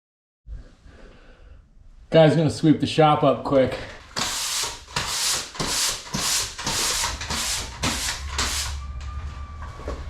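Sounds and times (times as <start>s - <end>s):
broom sweeping floor: 4.1s - 8.8s.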